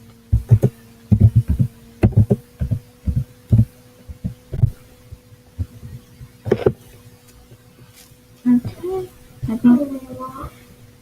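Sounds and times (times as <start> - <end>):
electrical hum: 0.0 - 11.0
dull low thumps: 0.3 - 4.8.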